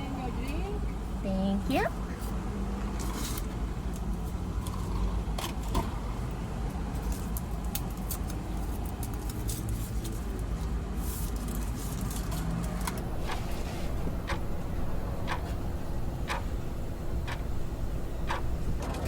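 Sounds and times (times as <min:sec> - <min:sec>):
car engine idling: 0:13.0 - 0:19.0.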